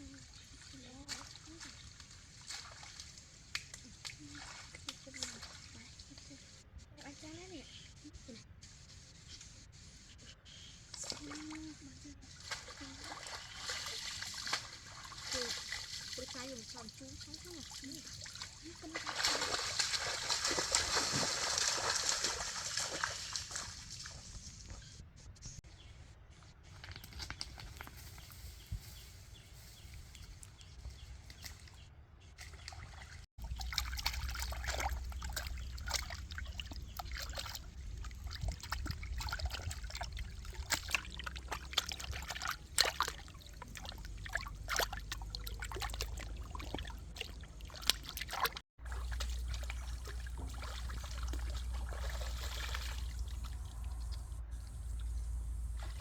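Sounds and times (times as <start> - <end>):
water trickling and splashing: 0.0 - 6.4, 10.9 - 24.4, 32.4 - 56.0
steady low rumble: 33.4 - 41.8, 48.8 - 56.0.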